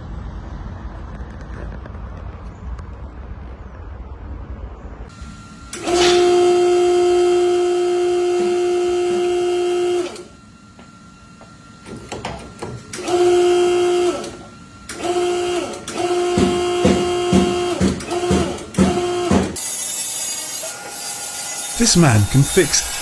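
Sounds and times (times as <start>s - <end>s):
power tool motor whirring: 15.0s - 23.0s.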